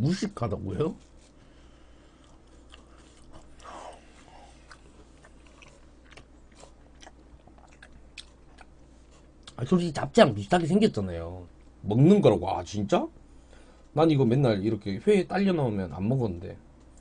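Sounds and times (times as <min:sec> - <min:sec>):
person chewing food: 0:01.1 - 0:09.6.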